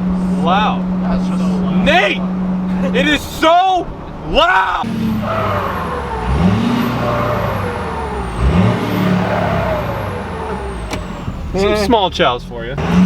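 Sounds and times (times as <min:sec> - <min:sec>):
loud truck exhaust under full throttle: 0:04.8 - 0:13.0.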